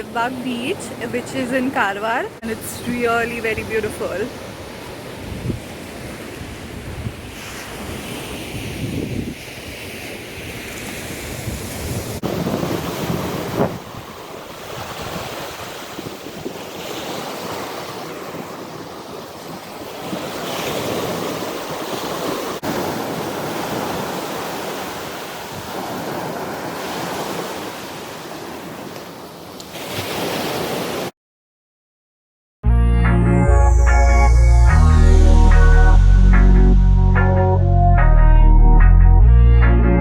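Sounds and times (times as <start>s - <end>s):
sea waves breaking on beach: 0.0s - 31.1s
wind buffeting microphone: 2.5s - 16.9s.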